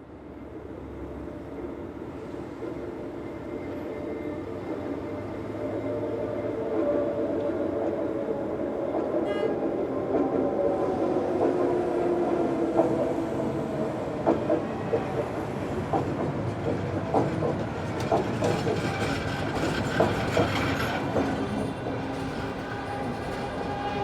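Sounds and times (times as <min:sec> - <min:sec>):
train rumbling on rails: 0:00.1 - 0:24.0
wheels clacking over rail joints: 0:14.1 - 0:23.8.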